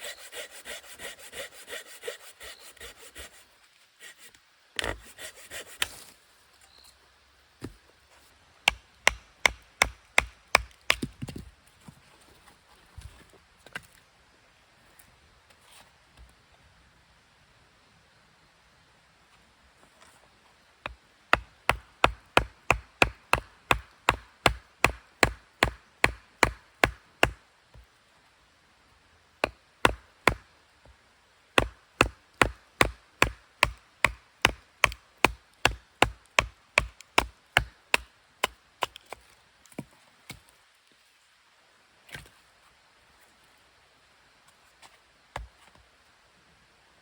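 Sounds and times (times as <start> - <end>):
blade chopping wood: 21.3 - 27.4, 29.4 - 30.4, 31.6 - 39.1.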